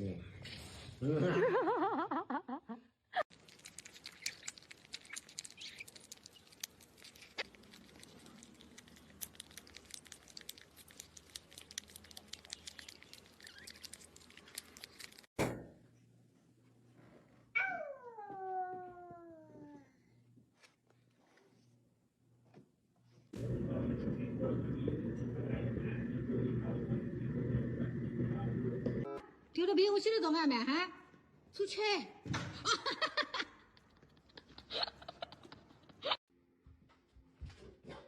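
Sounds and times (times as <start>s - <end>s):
cat yowling: 17.6s - 19.3s.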